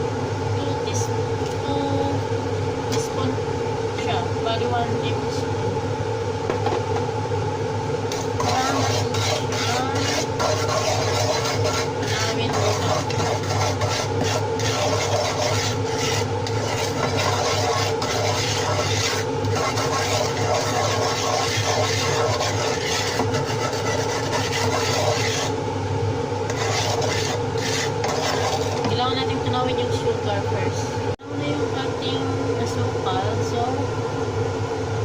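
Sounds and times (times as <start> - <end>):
utensil scraping a pan: 8.1 - 25.6, 26.4 - 29.4.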